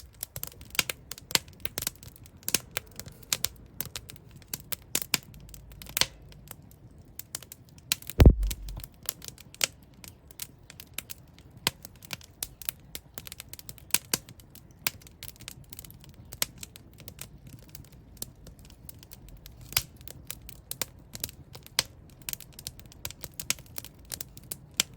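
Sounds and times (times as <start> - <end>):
wood fire crackling and popping: 0.0 - 24.9
loud thump: 8.2 - 8.8
low fire hiss: 8.2 - 8.9.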